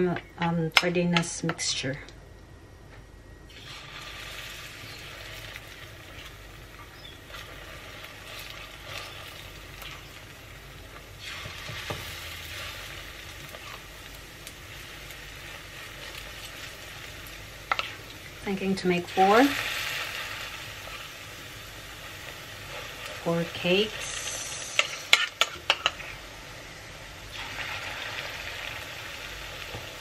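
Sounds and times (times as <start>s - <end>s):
food sizzling in hot oil: 3.5s - 30.0s.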